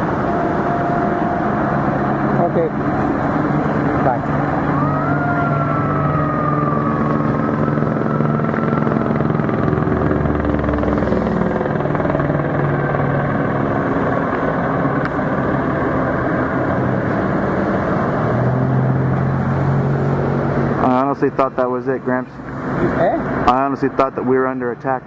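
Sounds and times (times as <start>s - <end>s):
falling whine: 0.0s - 21.5s
droning engine and traffic hum: 0.0s - 25.0s.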